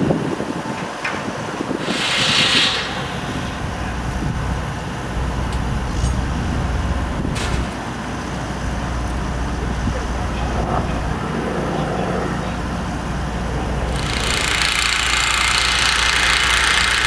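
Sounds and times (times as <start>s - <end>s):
construction machinery engine rumbling: 0.2s - 17.0s
short hiss: 1.8s - 4.4s.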